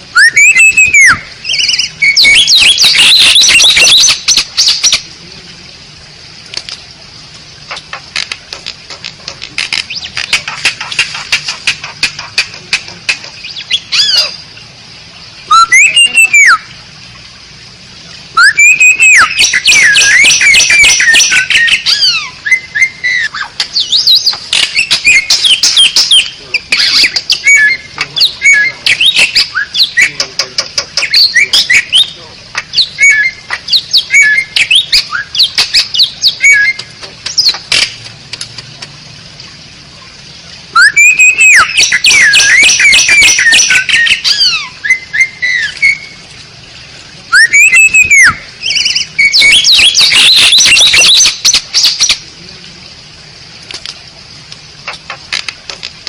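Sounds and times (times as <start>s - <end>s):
starling singing: 0.1s - 5.1s, 9.7s - 14.5s, 15.4s - 16.7s, 18.4s - 38.0s, 40.7s - 46.2s, 47.3s - 52.2s.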